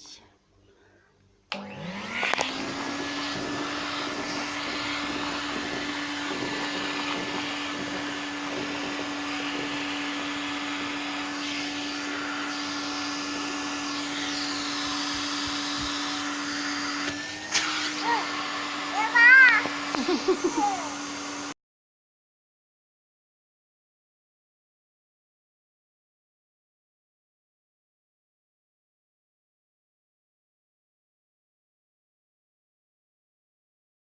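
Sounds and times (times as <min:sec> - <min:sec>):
toy vacuum cleaner motor whine: 0:01.5 - 0:21.6.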